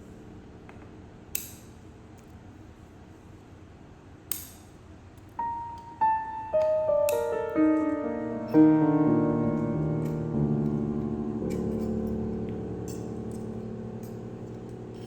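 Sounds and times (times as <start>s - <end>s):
solo piano music: 5.4s - 15.0s.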